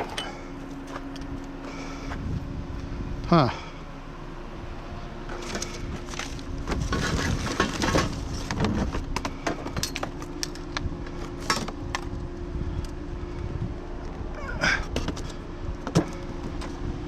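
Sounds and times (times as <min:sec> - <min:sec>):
steady low hum: 0:00.0 - 0:17.0
metal and plastic items clattering: 0:05.4 - 0:10.6.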